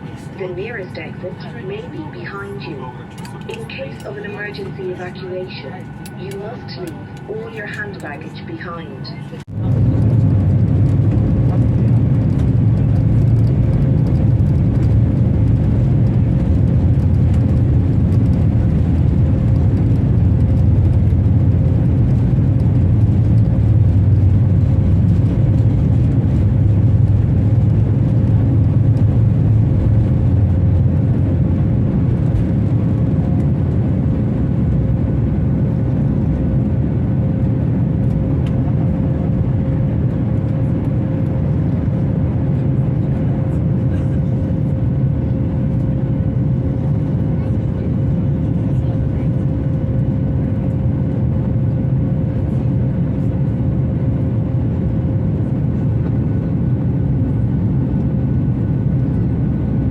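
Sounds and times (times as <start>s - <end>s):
jet engine rumble in cabin: 0.0s - 59.9s.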